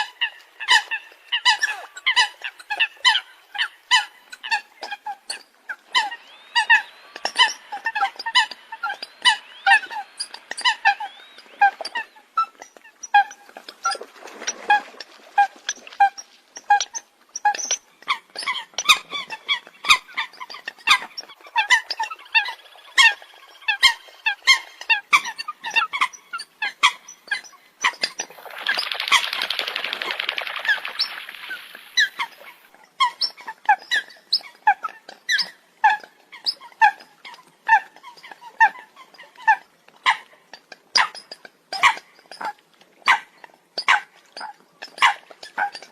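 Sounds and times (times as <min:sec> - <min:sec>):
coots calling: 0:18.0 - 0:33.2
noisy hiss: 0:28.3 - 0:32.7.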